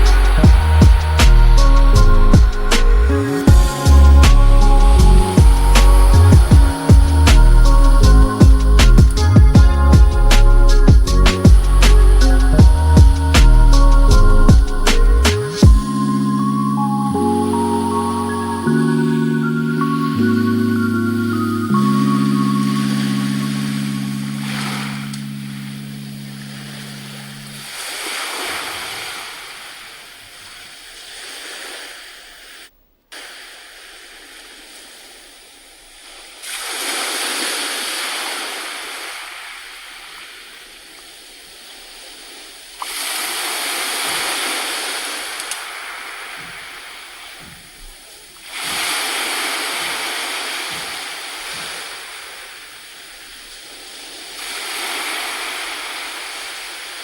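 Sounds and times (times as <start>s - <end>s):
low steady hum: 0.0s - 27.9s
waves washing in: 0.0s - 57.0s.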